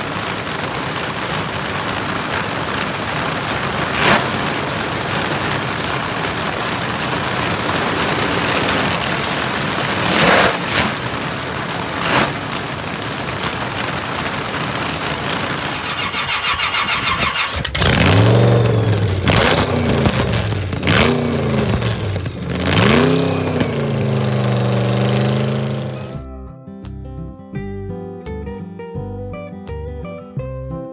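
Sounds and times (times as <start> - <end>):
car engine starting and revving: 9.8 - 11.3, 15.5 - 26.2
short loud bursts: 15.5 - 26.2.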